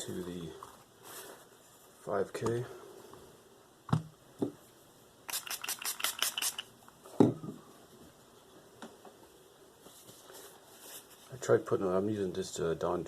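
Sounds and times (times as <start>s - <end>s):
hissy sharpening strokes: 5.3s - 6.7s.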